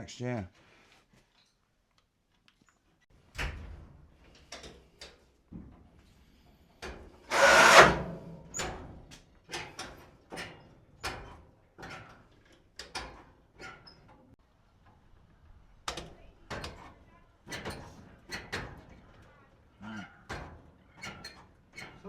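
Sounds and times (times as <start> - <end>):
short loud burst of noise: 7.3 - 8.5.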